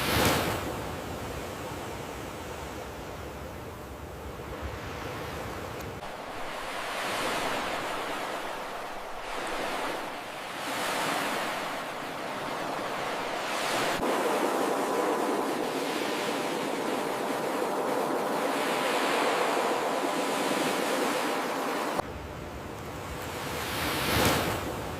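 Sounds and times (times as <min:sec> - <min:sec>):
waves breaking on shore: 0:00.0 - 0:24.9.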